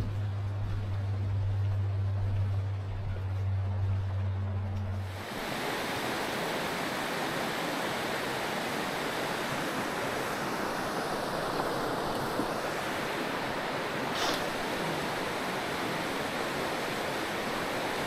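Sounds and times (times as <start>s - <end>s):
water rushing over rocks: 5.1s - 18.0s.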